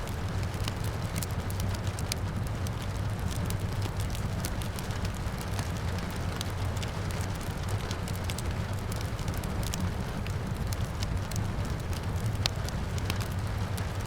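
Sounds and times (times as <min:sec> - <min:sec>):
fireplace fire crackling: 0:00.0 - 0:14.0
steady rain hiss: 0:00.0 - 0:14.0.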